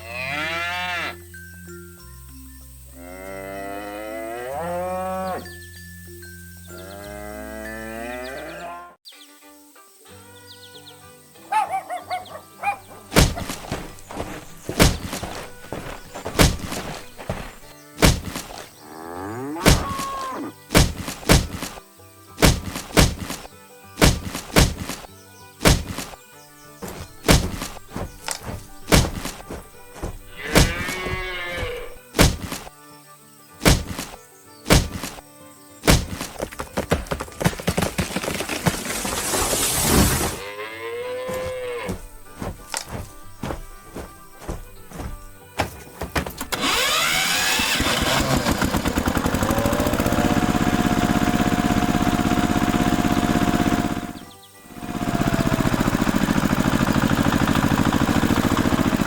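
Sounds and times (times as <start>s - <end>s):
background music: 0.0s - 38.2s, 40.4s - 47.8s
heavy thunks and whacks: 12.9s - 18.7s, 19.6s - 21.8s, 22.4s - 26.2s, 26.8s - 32.7s, 33.6s - 35.2s, 35.8s - 40.4s, 41.3s - 47.2s.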